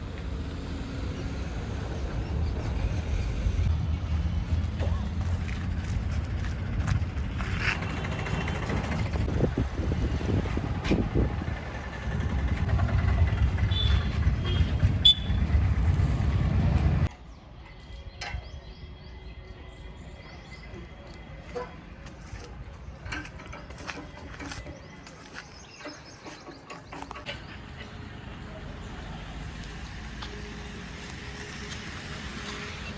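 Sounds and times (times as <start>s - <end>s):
heavy vehicle engine rumbling: 0.0s - 17.1s.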